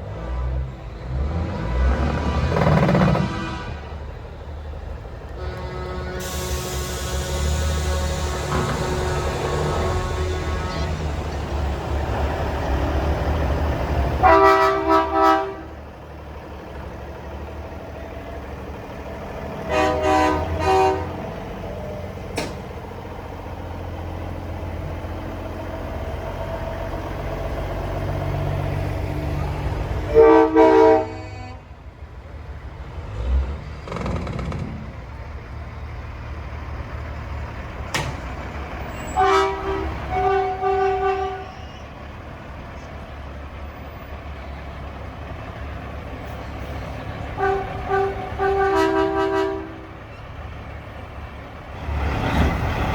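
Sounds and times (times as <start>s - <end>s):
diesel truck engines rumbling: 0.0s - 52.9s
truck air horn blasts: 2.3s - 4.1s, 5.3s - 11.6s, 14.2s - 15.8s, 19.6s - 21.6s, 30.0s - 31.8s, 38.8s - 41.9s, 47.2s - 50.1s.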